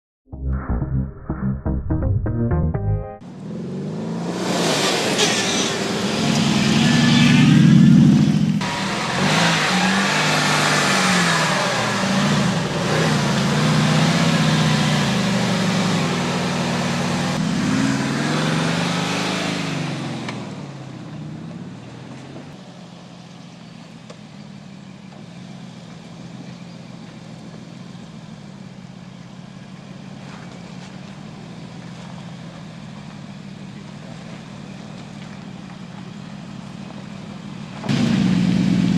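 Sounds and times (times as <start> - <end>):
car engine revving: 3.2 - 21.7, 37.9 - 38.9.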